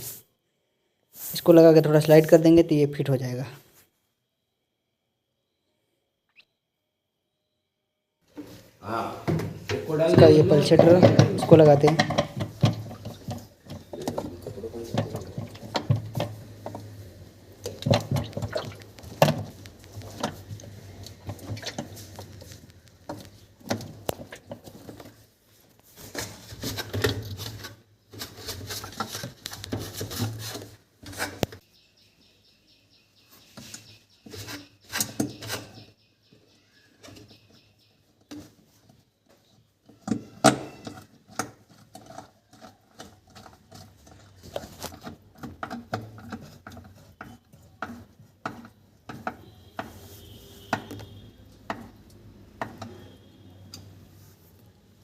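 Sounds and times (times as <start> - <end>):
washing machine parts clattering: 9.3 - 31.6, 38.2 - 54.0.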